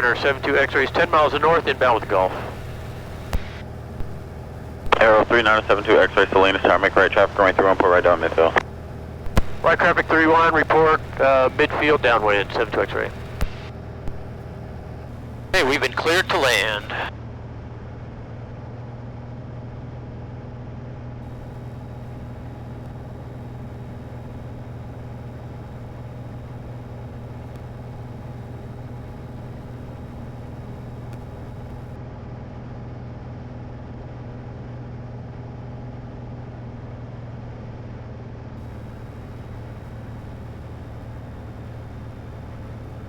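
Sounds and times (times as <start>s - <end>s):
airplane engine droning in cabin: 0.0s - 17.1s, 21.2s - 32.0s, 38.6s - 43.0s.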